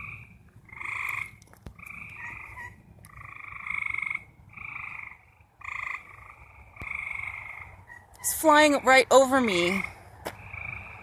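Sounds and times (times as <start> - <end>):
frogs buzzing trills: 0.0 - 11.0.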